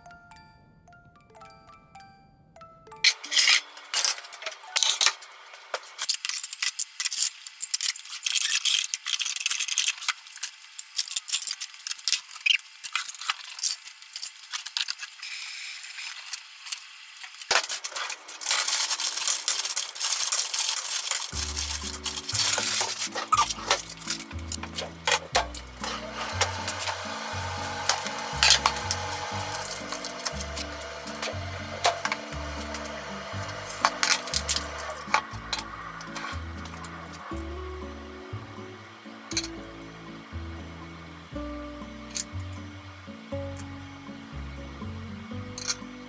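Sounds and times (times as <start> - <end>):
light background music: 0.0 - 5.5, 21.3 - 46.0
frozen vegetables tipped into bowl: 17.5 - 27.0.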